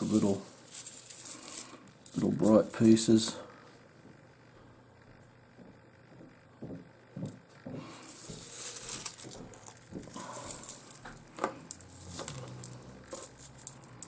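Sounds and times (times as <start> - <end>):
plastic packet rustling: 0.0 - 3.0, 8.1 - 14.0
stones clicking together: 8.2 - 14.0.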